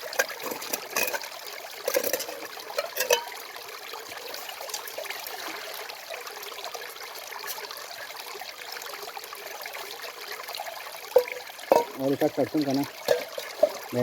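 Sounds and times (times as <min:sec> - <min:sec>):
running water rushing: 0:00.0 - 0:14.0.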